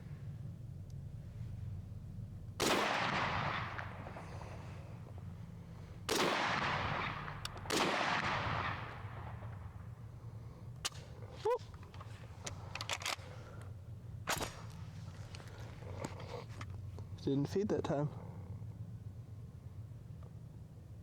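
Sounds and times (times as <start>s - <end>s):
rifle shots echoing: 0.0s - 16.1s
steady low hum: 0.0s - 21.0s.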